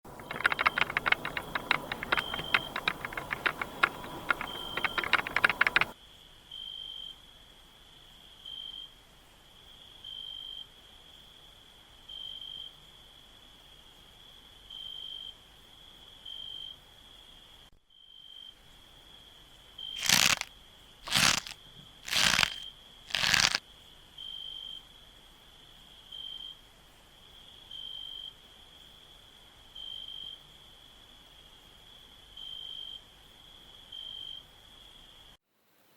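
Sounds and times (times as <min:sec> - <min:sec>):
cricket chirping: 0:00.1 - 0:06.0
rapid clicks and crackles: 0:00.1 - 0:06.0, 0:20.0 - 0:23.6
loud noisy strokes: 0:21.1 - 0:23.6.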